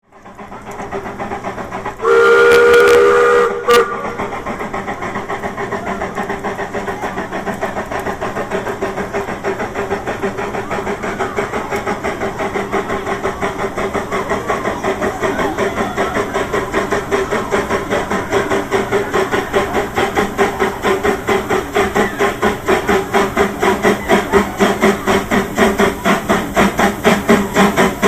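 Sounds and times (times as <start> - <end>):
steam locomotive chuffing: 0.0 - 28.0
steam whistle: 2.0 - 4.2.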